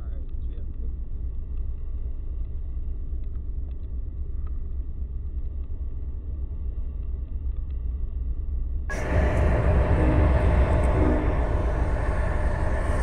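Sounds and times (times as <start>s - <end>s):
freight train rumbling: 8.9s - 13.0s.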